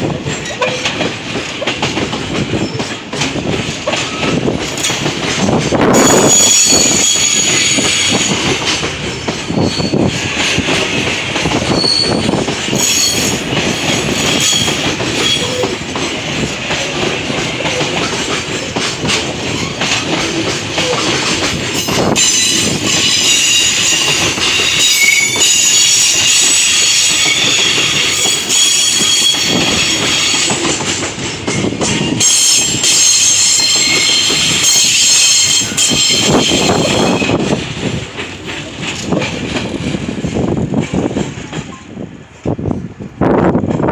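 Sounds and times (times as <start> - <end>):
wheels clacking over rail joints: 0.0 - 42.0
freight train rolling past: 0.0 - 43.9
train wheels squealing: 2.4 - 3.0, 5.9 - 10.3, 11.5 - 15.8, 19.4 - 30.9, 31.6 - 37.6.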